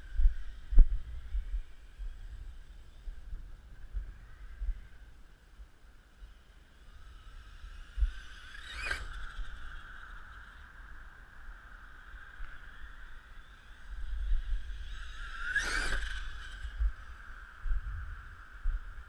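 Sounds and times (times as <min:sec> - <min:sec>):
electric toy truck whining: 0:06.3 - 0:11.0, 0:12.0 - 0:17.4.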